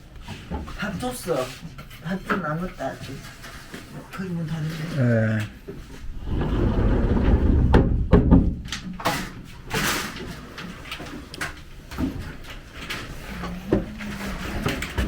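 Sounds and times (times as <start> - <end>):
door or cupboard knocks: 7.5 - 8.6.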